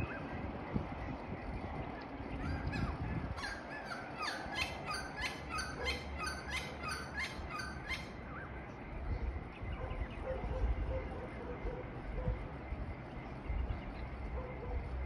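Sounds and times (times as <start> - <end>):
bird calling repeated notes: 2.5 - 8.2.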